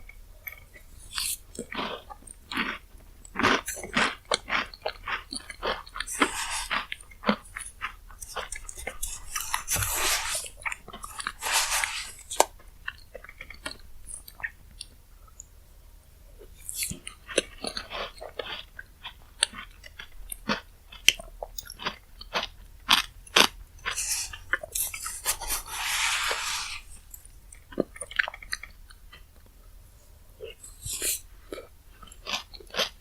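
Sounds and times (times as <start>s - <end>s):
chewing and crunching dessert: 0.0s - 33.0s
rush of hiss: 25.5s - 26.9s.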